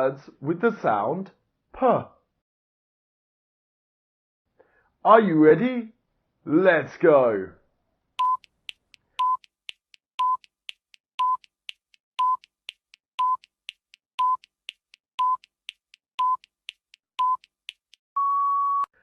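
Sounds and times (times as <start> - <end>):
faint ticking clicks: 8.2 - 18.1
short electronic beeps: 9.2 - 9.5, 10.2 - 10.5, 11.2 - 11.5, 12.2 - 12.5, 13.2 - 13.5, 14.2 - 14.5, 15.2 - 15.5, 16.2 - 16.5, 17.2 - 17.5.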